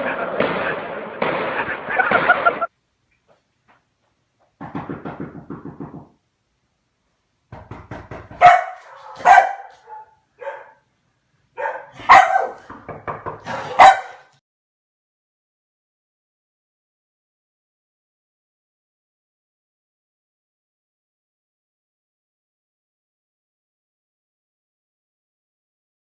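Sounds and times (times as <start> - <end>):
dog barking: 8.3 - 10.9, 11.6 - 12.8, 13.4 - 14.4.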